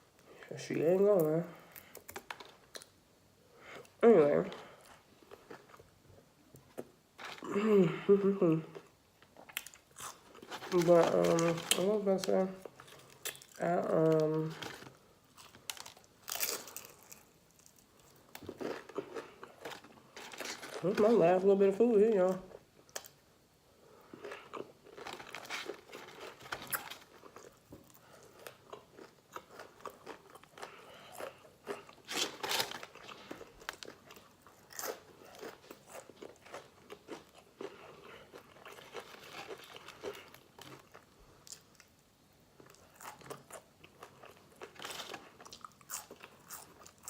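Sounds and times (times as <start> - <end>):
chewing crispy chicken: 9.4 - 20.9, 24.1 - 42.0, 42.6 - 47.0.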